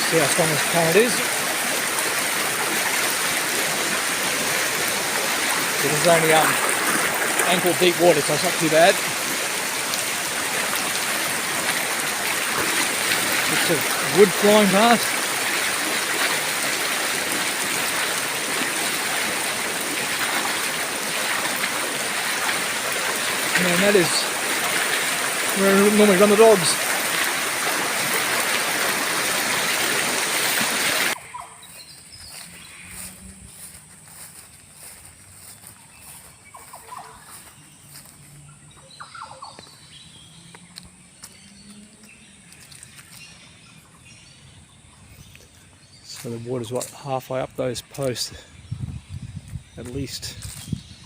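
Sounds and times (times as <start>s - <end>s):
floodwater rushing: 0.0s - 31.2s
outdoor background noise: 0.0s - 51.0s.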